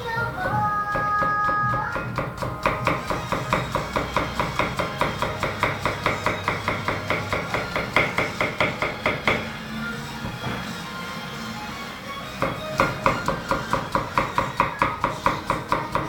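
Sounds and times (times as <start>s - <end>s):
knife chopping on cutting board: 0.9s - 9.5s, 12.4s - 16.0s.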